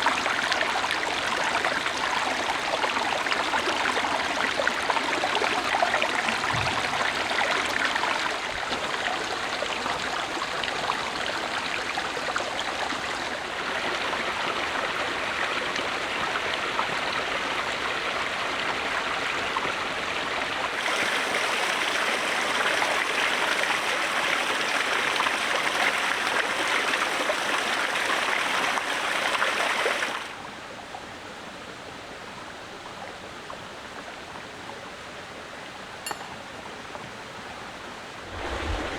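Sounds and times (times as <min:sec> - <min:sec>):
running water rushing: 0:20.6 - 0:30.4, 0:38.0 - 0:38.9.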